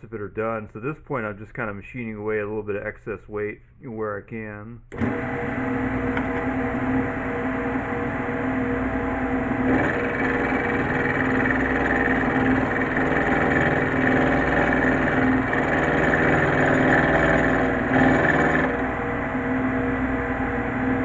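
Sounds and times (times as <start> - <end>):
milling spindle motor hum: 4.9 - 21.0
cutter machining metal: 9.6 - 18.9.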